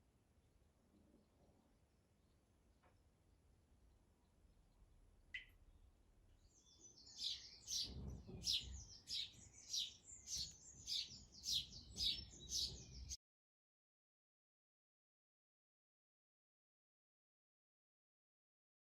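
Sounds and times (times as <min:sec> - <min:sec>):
small bird chirping: 0:05.3 - 0:13.2.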